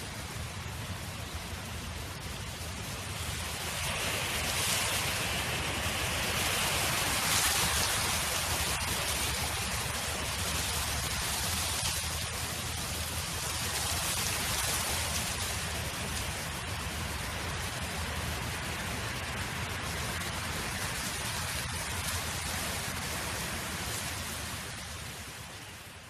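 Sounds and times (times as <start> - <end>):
wind rushing hiss: 0.0 - 26.0.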